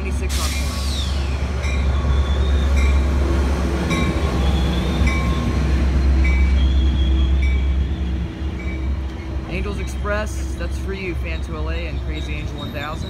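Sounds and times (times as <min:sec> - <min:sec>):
deep locomotive engine rumble: 0:00.0 - 0:13.0
train bell ringing: 0:01.6 - 0:03.2, 0:03.9 - 0:06.7, 0:07.3 - 0:07.8, 0:08.6 - 0:13.0.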